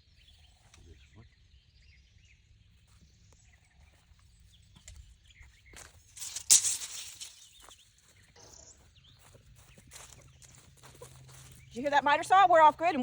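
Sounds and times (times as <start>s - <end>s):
faint bird chirps: 7.1s - 11.8s.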